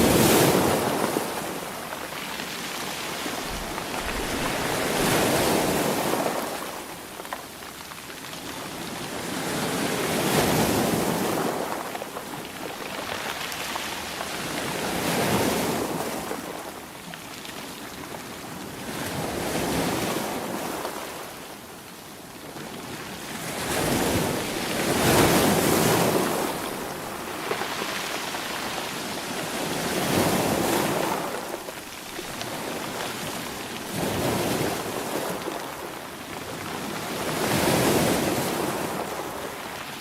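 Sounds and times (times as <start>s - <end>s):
sea waves surging: 0.0s - 7.2s.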